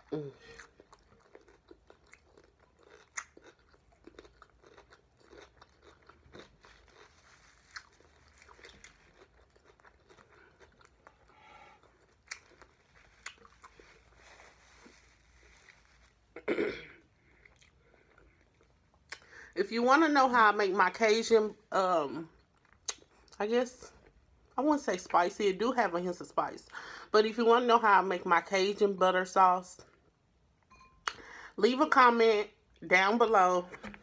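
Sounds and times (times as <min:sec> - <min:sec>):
person chewing cucumber: 0:00.0 - 0:16.2, 0:17.2 - 0:19.3, 0:22.4 - 0:23.4.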